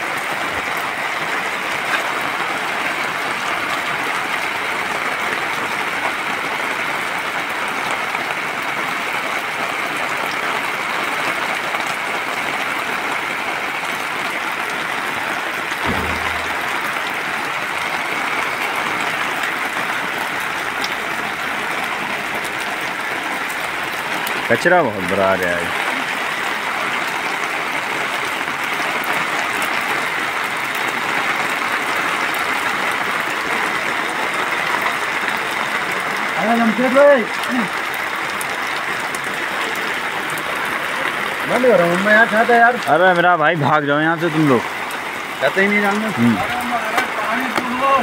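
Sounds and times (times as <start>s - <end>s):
heavy rain on water: 0.0s - 48.0s.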